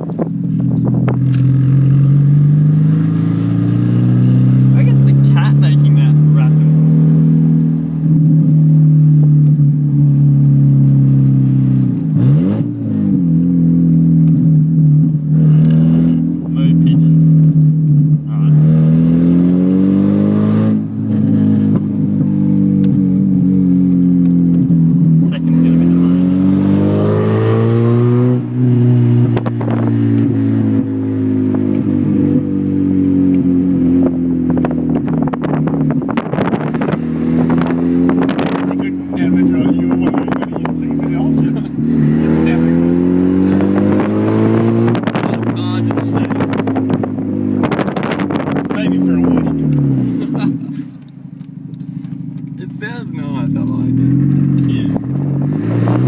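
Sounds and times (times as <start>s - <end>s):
loud car engine exhaust: 0.0s - 56.0s.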